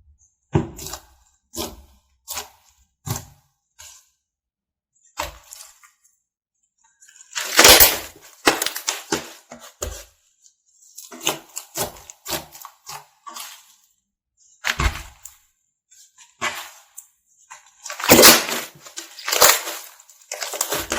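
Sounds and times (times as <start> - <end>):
slime popping and crackling: 17.9 - 20.9.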